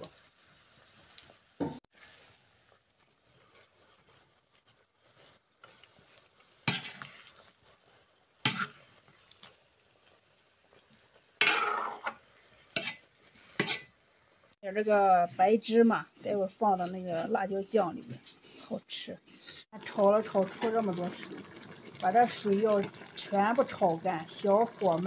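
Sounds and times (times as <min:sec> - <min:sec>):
chilies sizzling in oil: 0:00.0 - 0:25.0
spatula scraping a pan: 0:00.8 - 0:14.0, 0:15.1 - 0:19.7.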